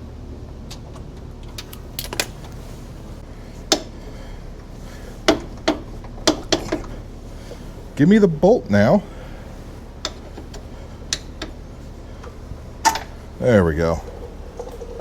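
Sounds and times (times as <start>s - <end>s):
steady low hum: 0.0s - 15.0s
metal clicks and clanks of tools: 1.4s - 2.6s.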